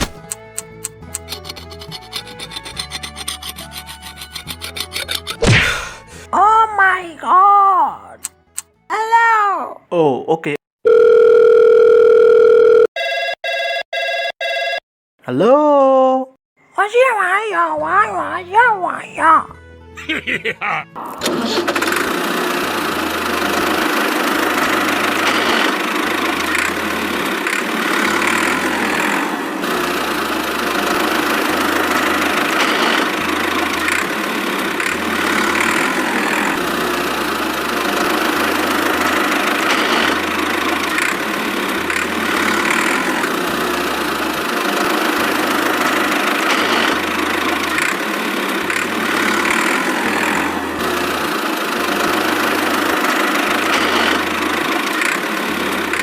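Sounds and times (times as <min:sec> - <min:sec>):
small tractor engine running: 0:00.0 - 0:05.4, 0:21.0 - 0:56.0.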